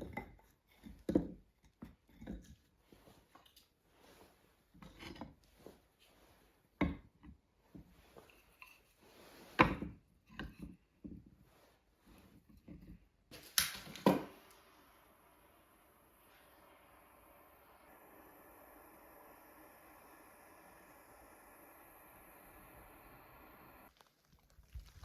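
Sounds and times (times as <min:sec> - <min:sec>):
faint steady hiss: 0:13.3 - 0:25.0.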